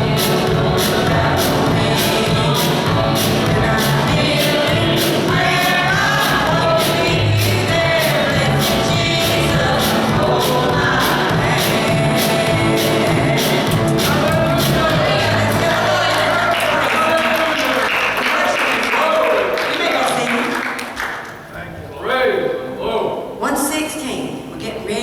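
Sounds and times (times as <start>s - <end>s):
band accompaniment with beat: 0.0s - 17.4s
group singing gospel song: 0.0s - 20.3s.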